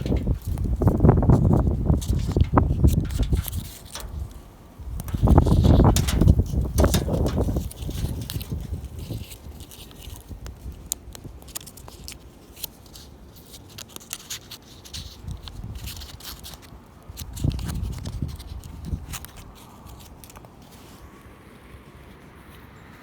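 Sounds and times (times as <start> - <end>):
wood fire crackling: 0.0 - 12.2.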